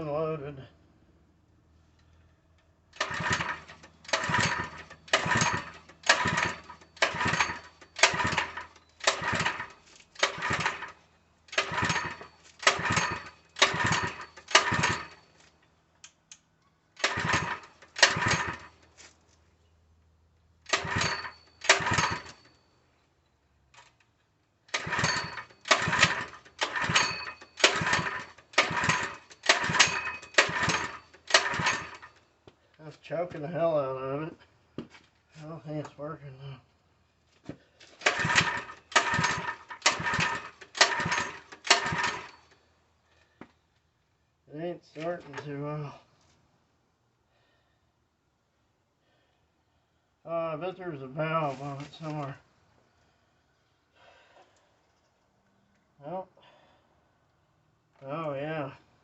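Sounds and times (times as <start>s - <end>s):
recoil starter cranking whir: 2.9s - 15.4s, 17.0s - 18.9s, 20.6s - 22.6s, 23.8s - 32.2s, 37.8s - 42.6s.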